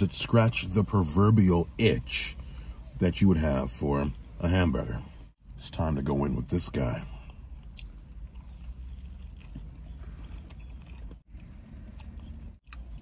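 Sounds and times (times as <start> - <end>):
low steady hum: 0.0 - 13.0
man chewing pizza: 7.2 - 13.0.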